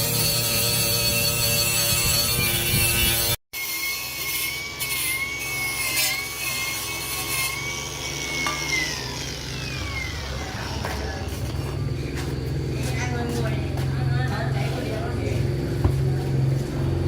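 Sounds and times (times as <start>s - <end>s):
power tool motor whining: 0.0s - 12.5s
mechanical noise: 0.0s - 13.2s.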